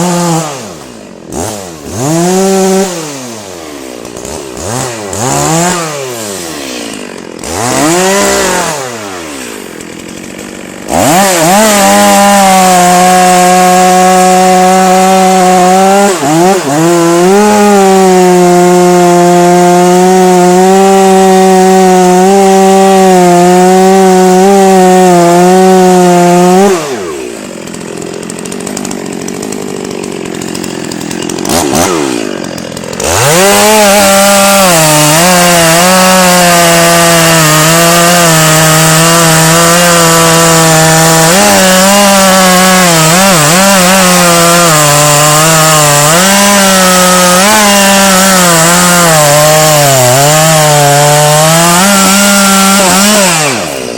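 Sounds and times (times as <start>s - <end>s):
chainsaw revving and idling: 0.0s - 53.9s.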